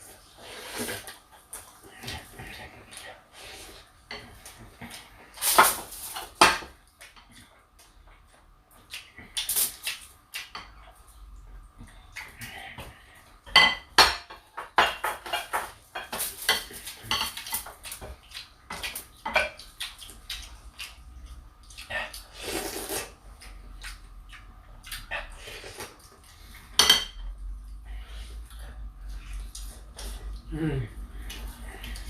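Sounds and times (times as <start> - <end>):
cutlery clinking on plates: 13.5 - 17.6.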